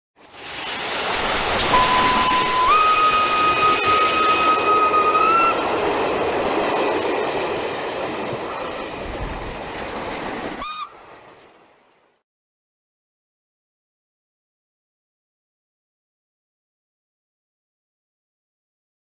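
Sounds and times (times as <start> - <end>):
hiss of steam: 0.2 - 5.5
steam locomotive whistle: 1.6 - 5.8, 10.6 - 11.1.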